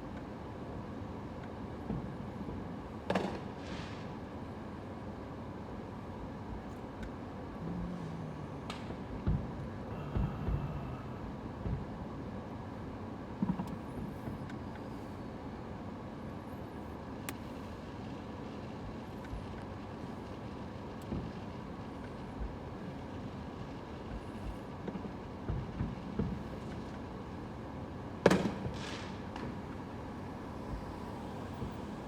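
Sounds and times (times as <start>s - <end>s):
steady low rumble: 6.3s - 12.4s.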